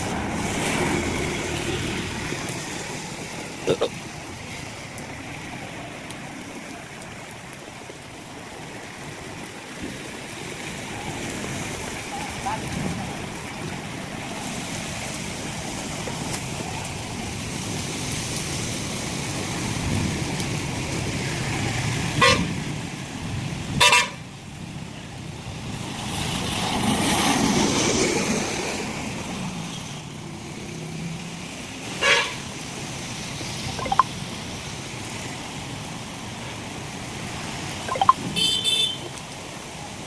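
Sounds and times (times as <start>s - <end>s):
rain hiss on wet road: 0.0s - 40.0s
vehicle horn toots: 22.2s - 22.4s, 23.8s - 24.1s, 38.3s - 39.0s.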